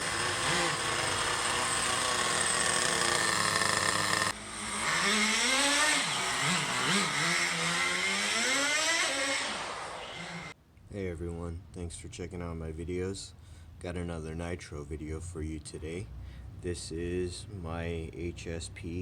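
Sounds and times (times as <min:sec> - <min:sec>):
model car engines revving: 0:00.0 - 0:10.6.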